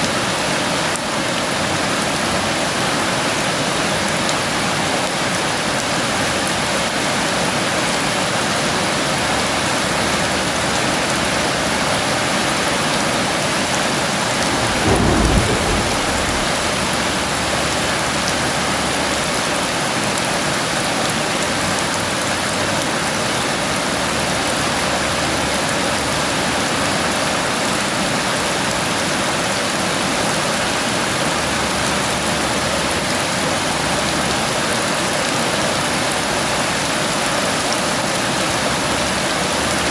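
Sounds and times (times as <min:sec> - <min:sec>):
heavy rain: 0:09.5 - 0:39.9
thunder rumble: 0:14.1 - 0:18.6.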